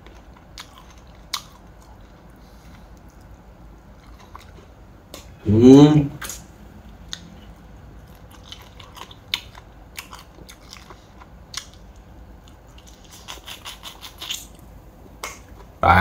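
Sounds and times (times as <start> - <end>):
chewing and crunching: 0.0 - 5.3, 7.0 - 15.8.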